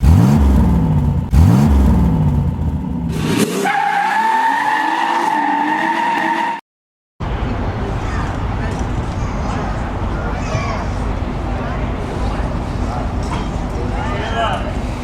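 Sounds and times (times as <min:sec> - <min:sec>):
car engine revving: 0:00.0 - 0:06.6
high-pitched tyre squeal: 0:03.2 - 0:06.6.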